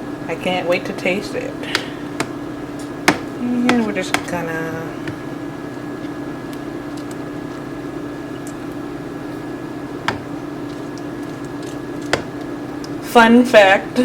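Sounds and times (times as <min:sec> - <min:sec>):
kitchen appliance humming: 0:00.0 - 0:14.0
sharp knocks: 0:03.0 - 0:04.4, 0:10.0 - 0:10.3.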